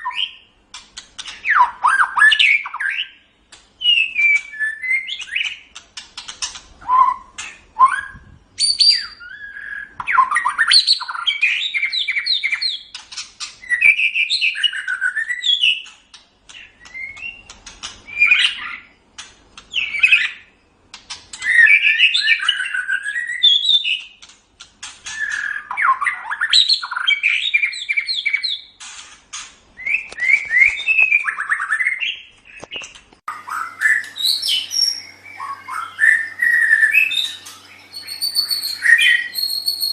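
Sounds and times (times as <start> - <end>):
songbird singing: 1.2 - 15.9, 29.8 - 39.9.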